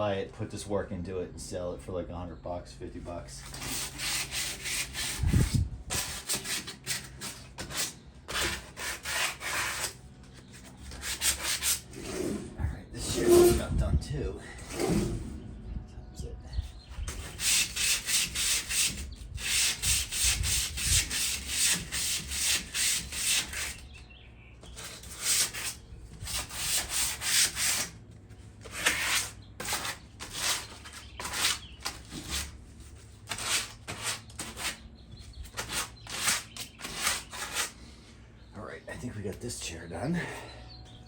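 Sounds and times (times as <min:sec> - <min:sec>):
hand sanding rusty metal: 0:03.4 - 0:12.4, 0:13.0 - 0:13.7, 0:17.0 - 0:23.9, 0:24.6 - 0:28.0, 0:28.6 - 0:34.8, 0:35.4 - 0:37.8.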